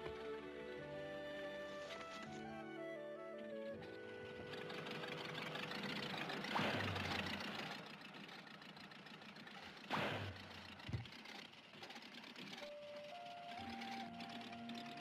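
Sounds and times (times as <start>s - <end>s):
old car engine chugging: 3.4s - 15.0s
engine loud bursts: 3.6s - 15.0s.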